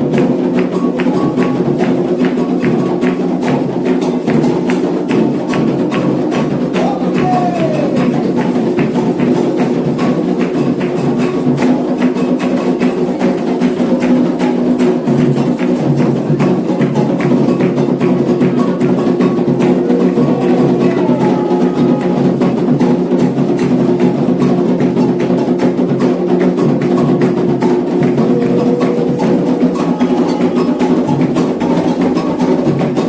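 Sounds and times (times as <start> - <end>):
hand drums playing: 0.0 - 33.0
steady held tones: 19.6 - 23.8, 27.7 - 33.0.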